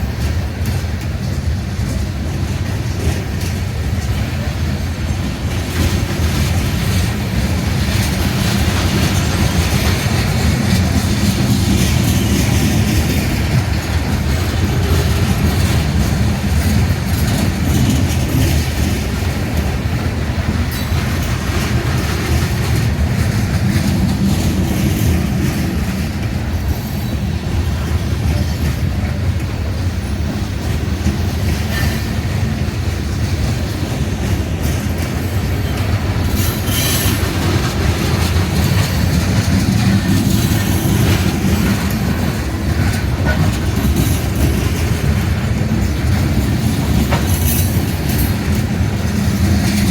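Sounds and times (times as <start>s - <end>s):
freight train rumbling past: 0.0s - 49.9s
wheel clatter over rails: 0.0s - 49.9s.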